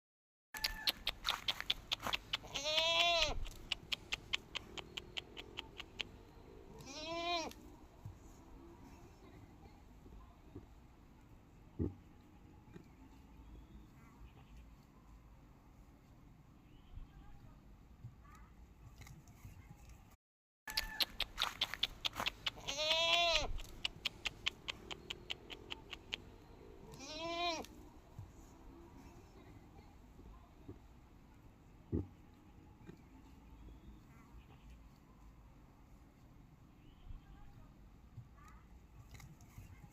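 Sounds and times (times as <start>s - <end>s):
sharp clicks: 0.6s - 6.2s, 20.7s - 26.4s
goat bleating: 2.0s - 3.6s, 6.8s - 7.6s, 22.2s - 23.7s, 26.9s - 27.8s
rapid sharp clicks: 3.4s - 6.1s, 23.6s - 26.2s.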